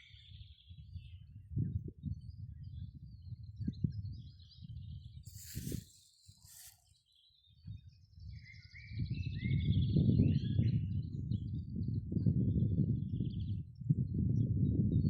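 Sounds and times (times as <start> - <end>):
wind rumble on microphone: 0.0 - 6.8, 7.4 - 15.0
brief hissing rustles: 5.3 - 6.9.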